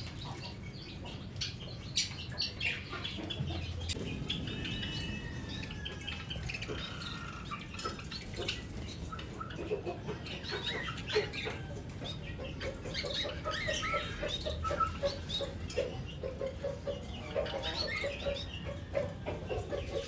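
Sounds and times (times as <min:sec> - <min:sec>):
budgies chirping and chattering: 0:00.0 - 0:20.0.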